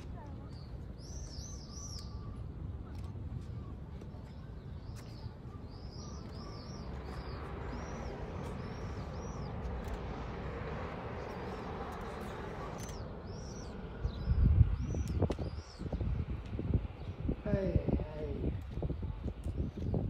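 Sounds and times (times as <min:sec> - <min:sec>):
low rumbling buffets: 0:00.0 - 0:20.0
small bird chirping: 0:00.2 - 0:02.4, 0:04.3 - 0:10.2.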